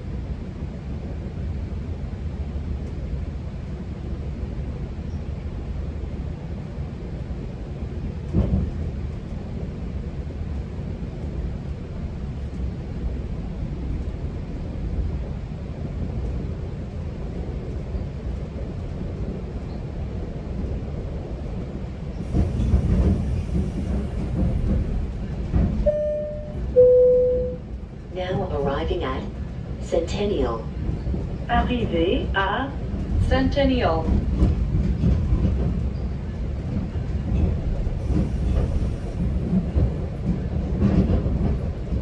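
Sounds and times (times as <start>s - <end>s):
train rumbling on rails: 0.0s - 42.0s
station announcement: 25.8s - 30.8s, 31.5s - 34.2s
two-note chime: 25.9s - 27.6s.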